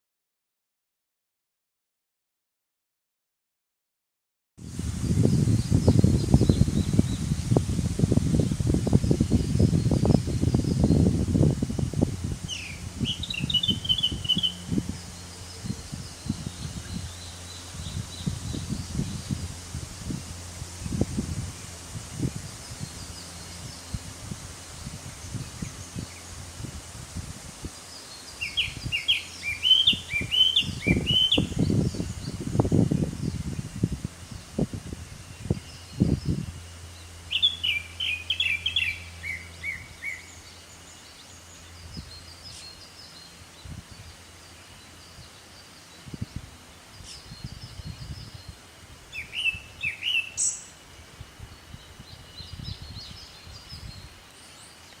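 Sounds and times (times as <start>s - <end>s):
other birds chirping: 12.5s - 19.4s, 27.8s - 32.4s.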